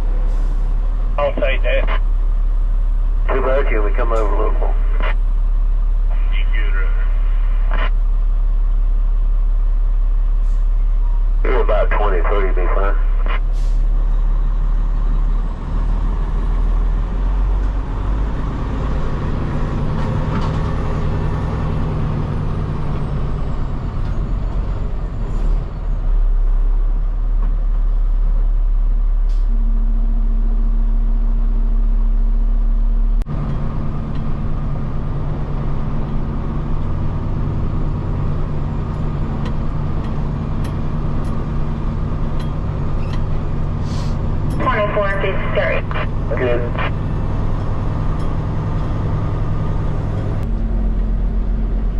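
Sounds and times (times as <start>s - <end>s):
diesel truck engine running: 0.0s - 51.9s.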